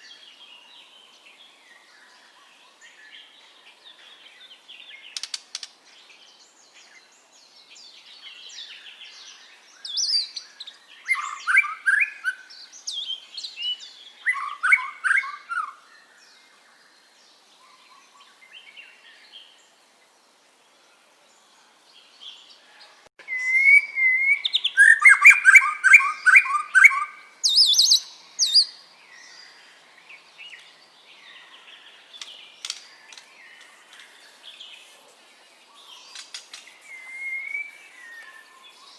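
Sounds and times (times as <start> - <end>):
bird singing varied phrases: 7.8 - 17.0, 23.2 - 38.9.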